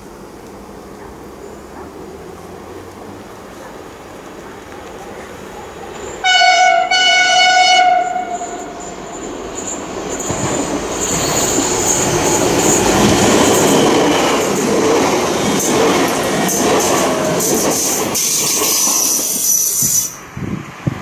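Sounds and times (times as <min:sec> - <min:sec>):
train wheels rumbling on rail: 0:00.0 - 0:21.0
train horn blasts: 0:06.2 - 0:08.9.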